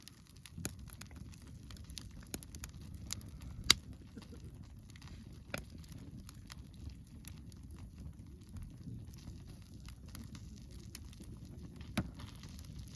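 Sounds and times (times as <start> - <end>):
campfire crackling: 0.0 - 12.9
sharp wood snaps: 2.0 - 3.8.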